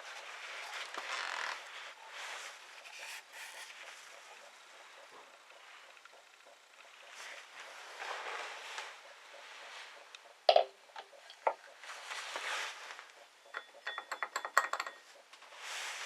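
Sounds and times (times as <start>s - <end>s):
metal tools clinking and knocking: 13.5s - 15.1s.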